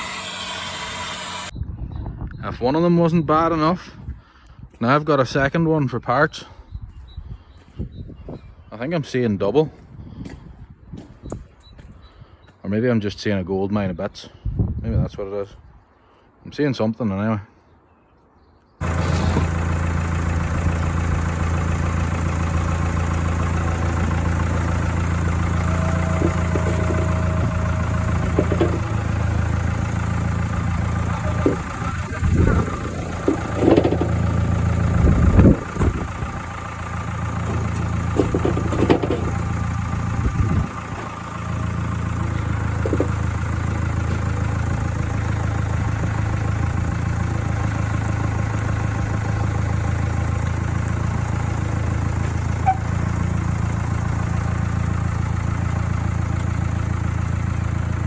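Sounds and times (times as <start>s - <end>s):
tractor engine running: 0.0s - 1.5s, 18.8s - 58.0s
knocks and clunks: 18.8s - 48.0s, 50.4s - 54.6s.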